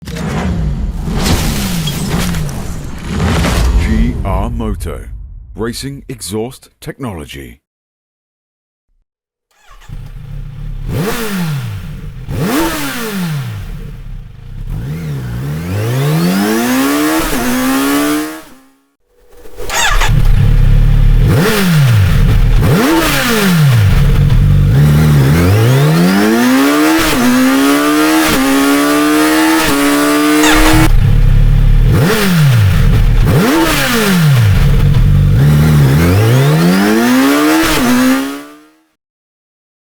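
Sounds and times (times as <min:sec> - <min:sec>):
motorcycle engine revving: 0:09.5 - 0:38.8.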